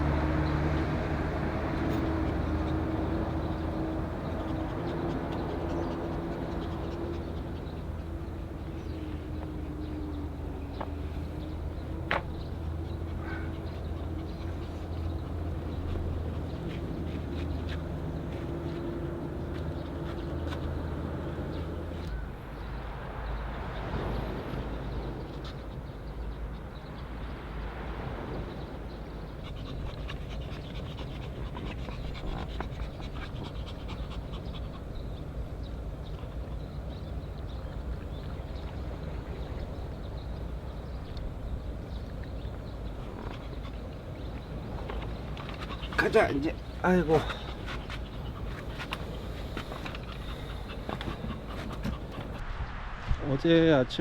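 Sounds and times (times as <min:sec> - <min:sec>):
dog panting: 0:00.0 - 0:26.6, 0:28.5 - 0:52.4.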